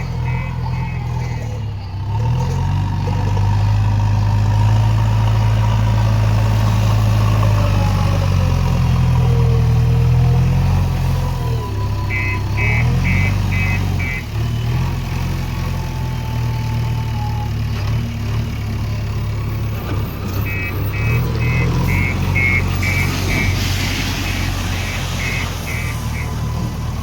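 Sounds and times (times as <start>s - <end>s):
reversing warning beeper: 0.0s - 1.8s, 11.2s - 14.5s, 20.3s - 27.0s
heavy diesel engine running: 0.0s - 27.0s.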